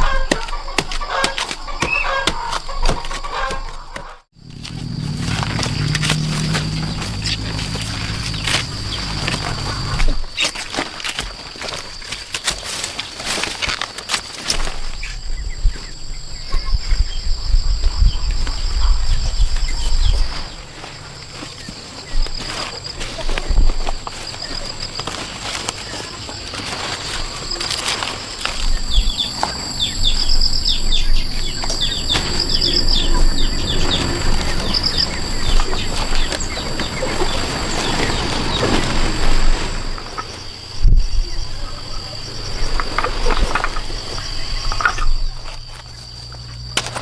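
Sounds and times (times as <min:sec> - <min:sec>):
birds chirping and trilling: 0:00.0 - 0:10.5, 0:28.2 - 0:45.5
low rumbling and thudding: 0:04.4 - 0:10.3, 0:28.8 - 0:44.6.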